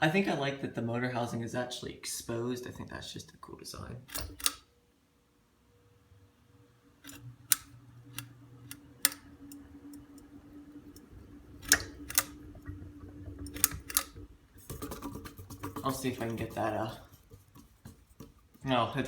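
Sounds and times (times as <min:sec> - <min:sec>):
ceiling fan motor hum: 0:00.0 - 0:19.0
fan pull-chain switch clicking: 0:04.1 - 0:04.7, 0:07.0 - 0:10.3, 0:10.9 - 0:12.4, 0:13.4 - 0:14.2.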